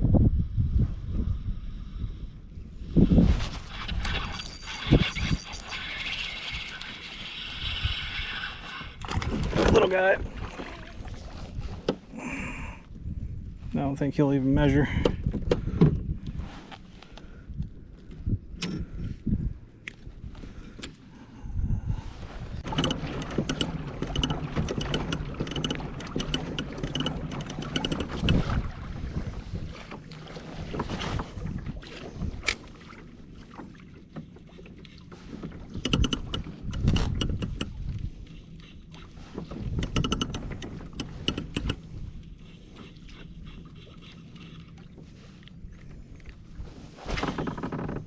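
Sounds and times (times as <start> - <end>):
low rumble: 0.0 - 3.7, 17.4 - 24.5
gear knocking and clicking in kayak: 8.9 - 12.1, 22.6 - 46.4, 47.1 - 48.0.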